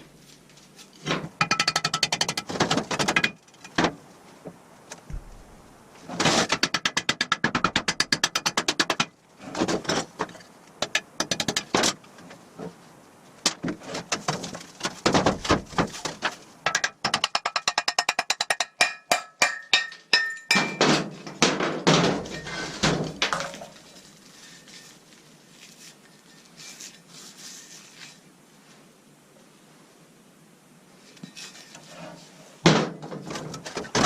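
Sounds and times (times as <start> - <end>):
faint handling sounds: 0.0 - 1.1, 23.5 - 29.9.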